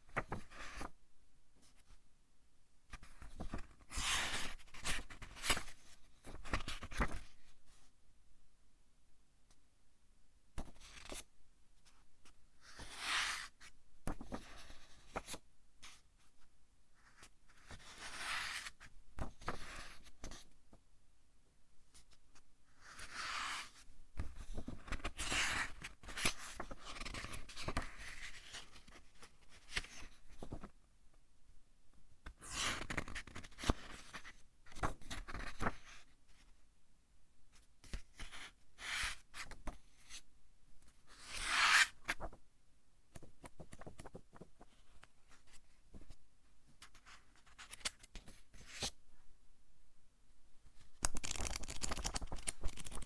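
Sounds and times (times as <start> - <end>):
book pages turning: 50.9 - 53.0.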